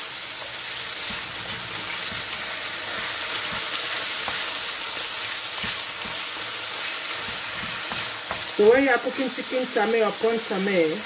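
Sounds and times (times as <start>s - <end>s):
chicken sizzling in hot oil: 0.0s - 11.0s
wooden spoon knocking pan: 7.2s - 8.8s.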